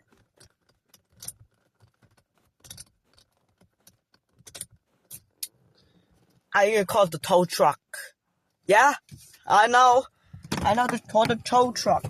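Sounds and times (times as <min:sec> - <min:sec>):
car keys jingling: 0:00.0 - 0:06.5.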